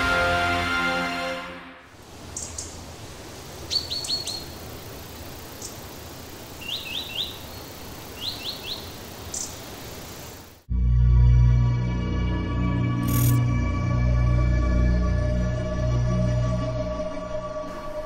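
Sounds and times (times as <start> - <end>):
steady background hiss: 1.9 - 10.7
bird chirping: 2.3 - 2.8, 3.6 - 4.9, 6.5 - 10.4.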